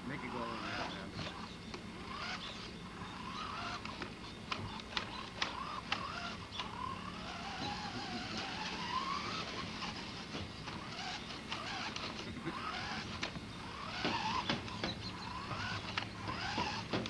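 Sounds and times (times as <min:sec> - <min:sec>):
toy car electric motor whining: 0:00.0 - 0:17.0
sharp clicks: 0:03.6 - 0:08.6, 0:10.6 - 0:17.0.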